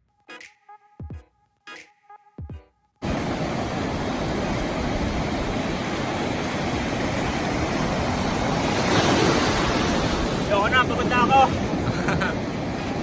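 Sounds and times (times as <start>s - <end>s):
surf at the shore: 3.0s - 13.0s
wind buffeting microphone: 3.0s - 13.0s.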